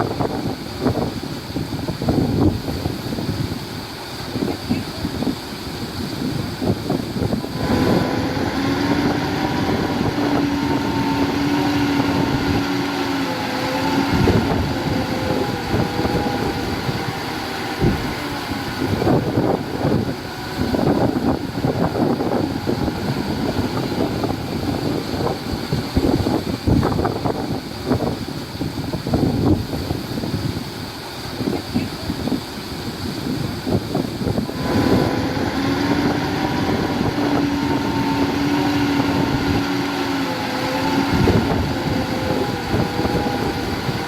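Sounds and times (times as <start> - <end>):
heavy machinery diesel engine: 0.0 - 44.0
wind buffeting microphone: 0.0 - 44.0.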